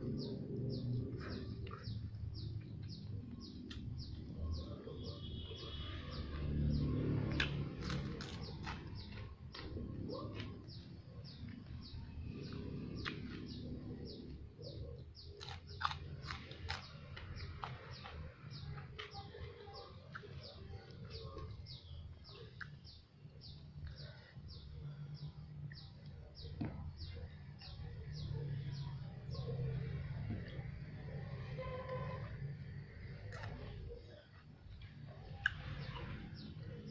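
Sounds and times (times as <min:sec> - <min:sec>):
small bird chirping: 0:00.0 - 0:31.5.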